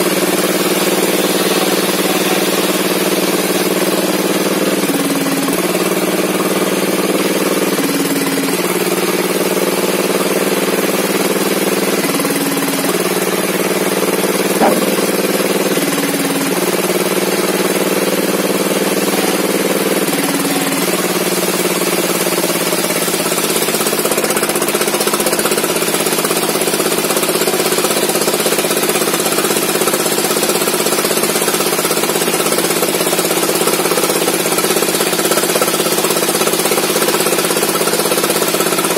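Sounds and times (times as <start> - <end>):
saw petrol engine running: 0.0 - 38.9.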